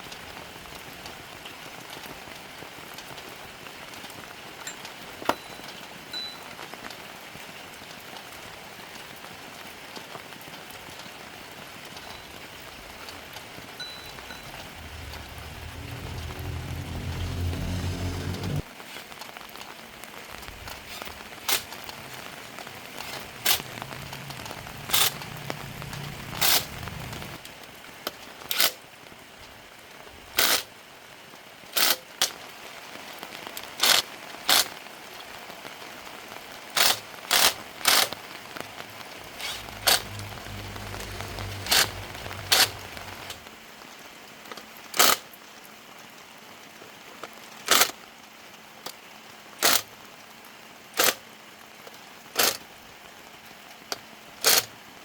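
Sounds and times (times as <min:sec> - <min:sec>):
low hum: 0:12.6 - 0:18.7, 0:21.9 - 0:27.4, 0:38.6 - 0:43.5.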